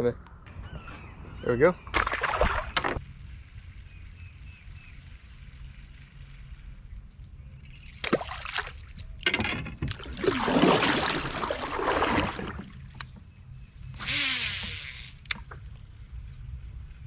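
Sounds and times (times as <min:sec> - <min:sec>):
water splashing and sloshing: 0:01.8 - 0:03.5, 0:04.9 - 0:13.3.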